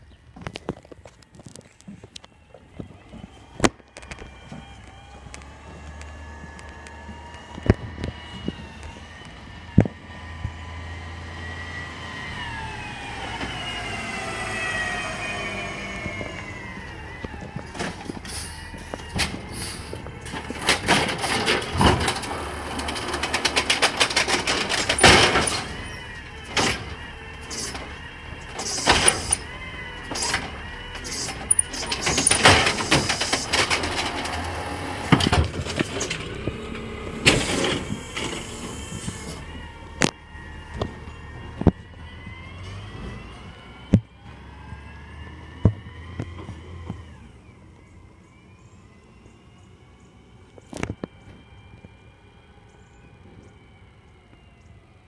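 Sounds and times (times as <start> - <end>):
vehicle whine passing by: 3.0 - 50.6
irregular clattering and banging: 20.2 - 27.9, 30.1 - 36.6.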